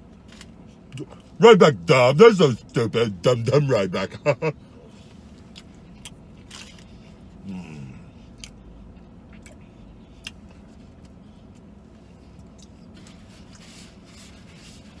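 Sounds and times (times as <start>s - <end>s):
man chewing bread: 5.3s - 15.0s.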